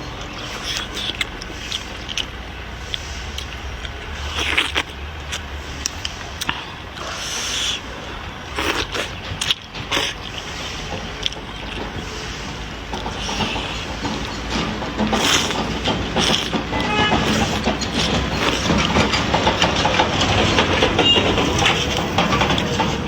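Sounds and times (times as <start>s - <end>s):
person chewing and slurping: 0.1s - 23.0s
small mouth clicks: 0.3s - 10.6s, 12.9s - 14.4s, 15.0s - 20.0s.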